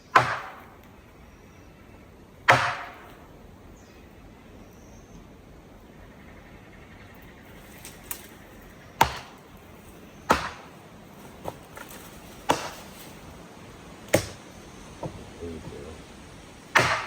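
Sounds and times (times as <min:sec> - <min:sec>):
sharp knocks: 0:00.1 - 0:00.8, 0:02.5 - 0:03.2, 0:09.0 - 0:09.4, 0:10.3 - 0:10.7, 0:11.4 - 0:13.0, 0:14.1 - 0:14.4, 0:16.7 - 0:17.0
faint background hiss: 0:00.7 - 0:16.8.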